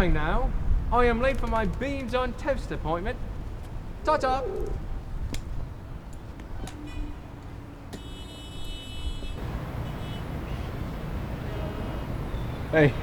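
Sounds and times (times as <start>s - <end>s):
traffic rumble: 0.0s - 13.0s
horn toot: 8.0s - 13.0s.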